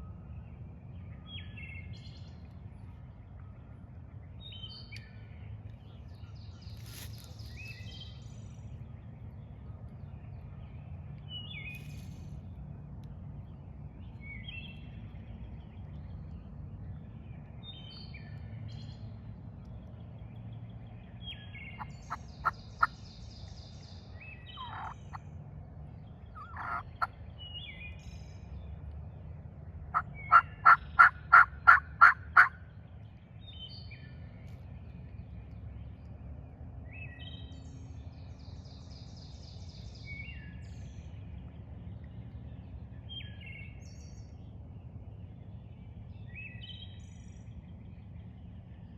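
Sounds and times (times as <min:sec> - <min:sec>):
songbird singing short song: 0:00.0 - 0:48.9
wild turkey yelping: 0:24.6 - 0:25.0, 0:26.4 - 0:27.1, 0:29.9 - 0:32.6.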